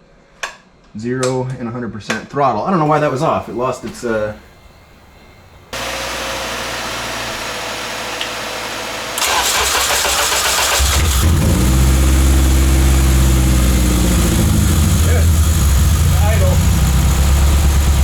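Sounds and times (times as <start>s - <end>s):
steady hum: 2.8s - 9.2s
car engine idling unevenly: 3.0s - 18.0s
starter motor cranking: 5.8s - 18.0s.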